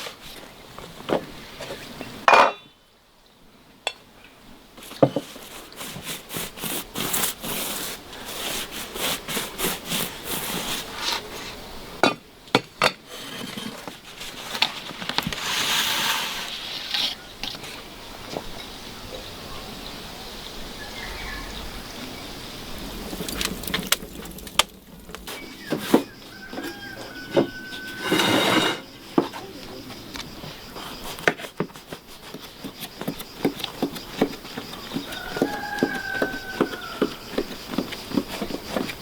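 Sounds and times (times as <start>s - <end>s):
rubbing and scraping: 4.8s - 11.5s, 13.0s - 17.8s, 22.6s - 29.4s, 30.8s - 39.0s.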